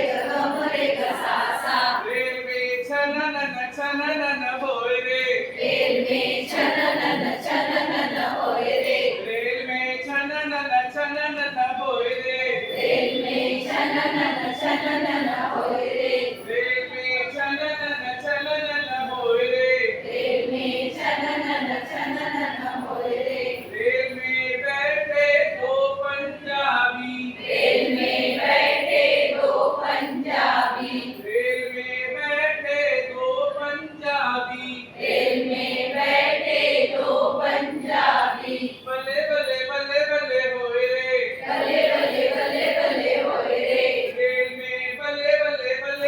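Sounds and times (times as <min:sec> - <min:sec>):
voices singing chant-like melody: 0:00.0 - 0:02.1, 0:05.6 - 0:09.3, 0:12.7 - 0:16.6, 0:20.0 - 0:23.9, 0:27.4 - 0:31.3, 0:35.0 - 0:38.9, 0:41.4 - 0:44.3.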